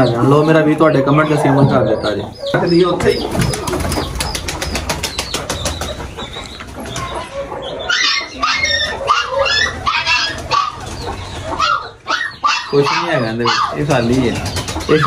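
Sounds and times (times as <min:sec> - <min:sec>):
bird wings flapping: 0:03.2 - 0:06.2.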